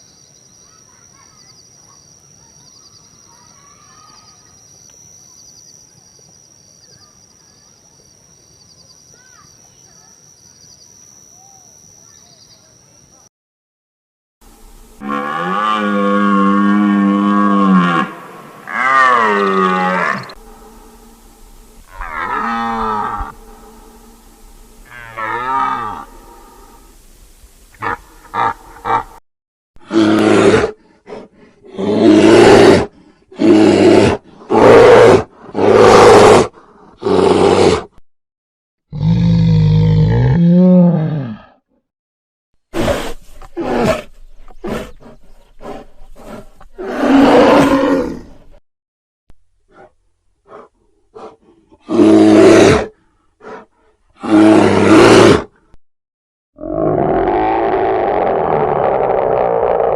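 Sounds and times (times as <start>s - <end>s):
big cat roaring: 29.8s - 37.9s, 38.9s - 41.6s, 45.6s - 48.6s, 50.5s - 53.6s, 54.2s - 55.5s, 56.6s - 59.9s.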